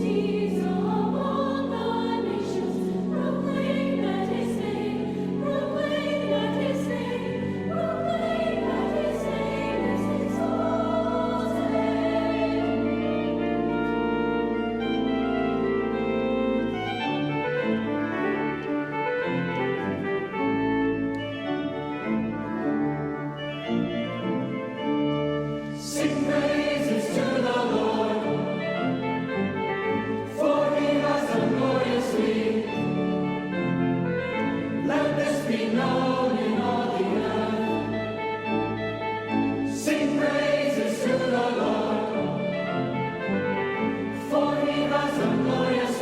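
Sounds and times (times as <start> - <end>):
youth choir singing: 0.0 - 13.6, 25.8 - 29.0, 30.0 - 38.2, 39.7 - 46.0
keyboard chords: 0.0 - 46.0.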